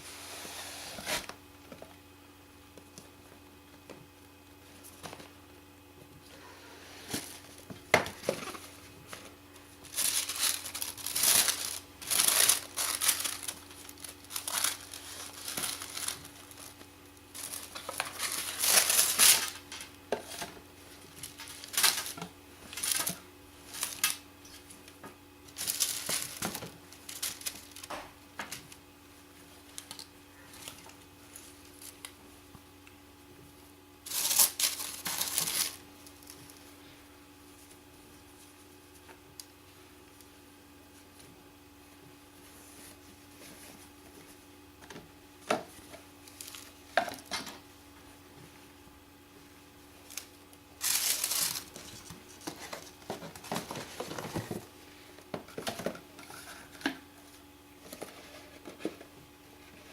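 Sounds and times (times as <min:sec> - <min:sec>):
packaging crinkling and rustling: 0:07.0 - 0:28.8, 0:29.5 - 0:32.2, 0:34.0 - 0:36.7, 0:45.6 - 0:47.6, 0:50.0 - 0:59.1.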